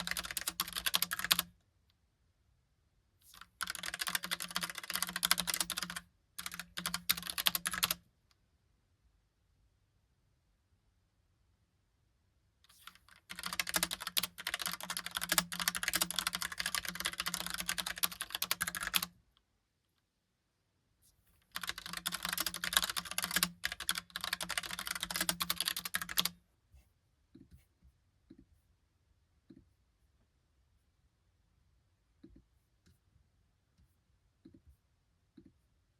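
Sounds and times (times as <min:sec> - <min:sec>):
mechanical keyboard typing: 0:00.0 - 0:01.5, 0:03.3 - 0:08.0, 0:12.9 - 0:19.2, 0:21.5 - 0:26.4.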